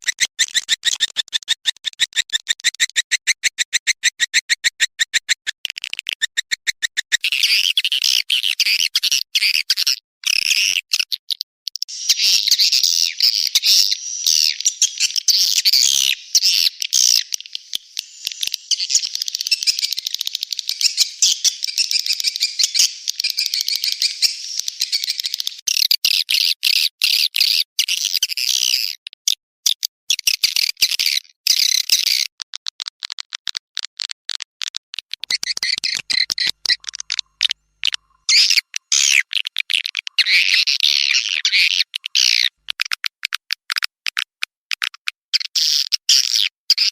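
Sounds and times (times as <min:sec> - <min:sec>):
swiftlets twittering: 0:11.9 - 0:25.6
rapid clicks: 0:32.3 - 0:38.1.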